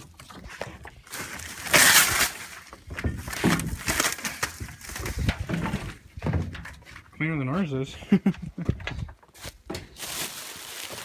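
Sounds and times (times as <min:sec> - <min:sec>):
plastic sheeting crinkling: 0:00.0 - 0:05.5, 0:09.4 - 0:11.0.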